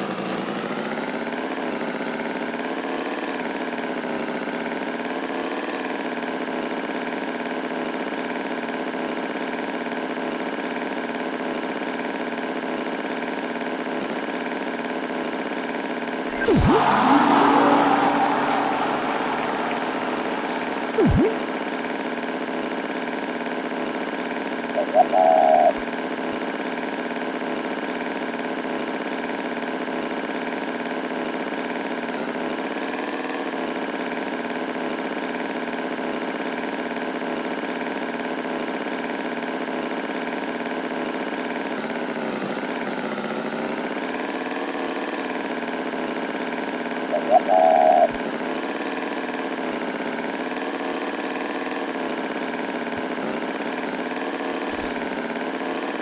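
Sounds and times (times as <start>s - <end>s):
short high-pitched sound: 16.3s - 22.2s.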